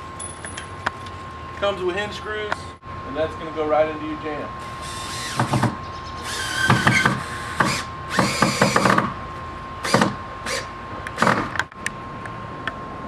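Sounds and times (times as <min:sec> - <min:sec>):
cordless drill driving screws: 0:06.2 - 0:09.0.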